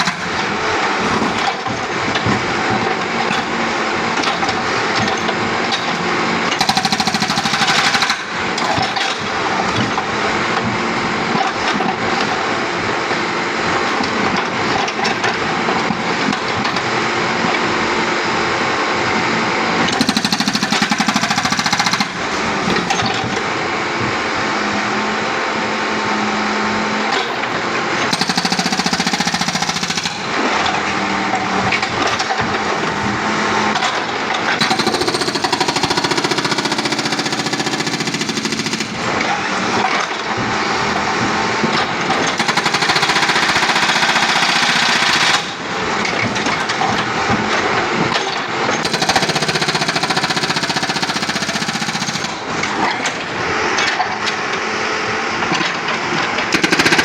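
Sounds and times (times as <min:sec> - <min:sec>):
backhoe engine running: 0:00.0 - 0:57.0
hydraulic breaker hammering concrete: 0:00.0 - 0:57.0.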